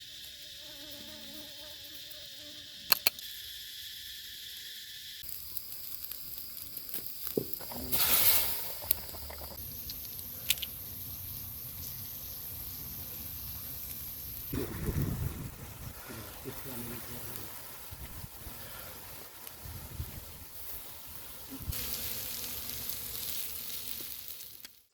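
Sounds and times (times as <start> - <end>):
insects buzzing and trilling: 0.0 - 24.9
sharp clicks: 2.9 - 3.3.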